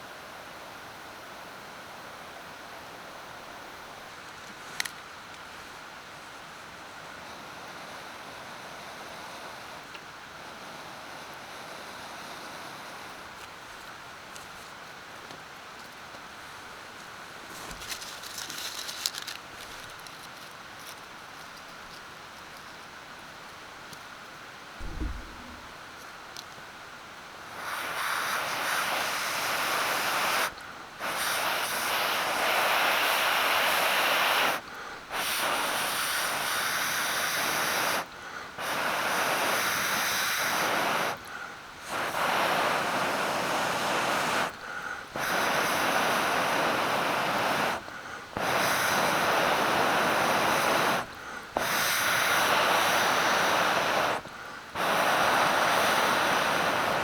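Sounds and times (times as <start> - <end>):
steady rushing noise: 24.8 - 25.8.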